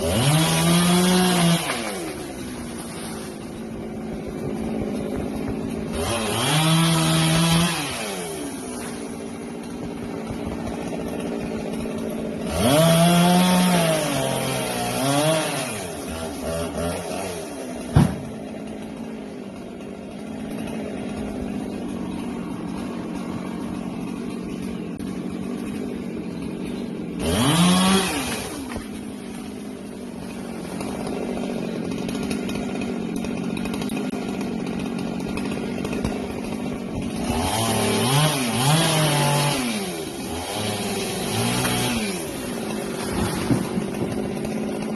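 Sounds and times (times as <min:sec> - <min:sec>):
chainsaw idling and revving: 0:00.0 - 0:44.9
sharp knock: 0:17.9 - 0:18.3.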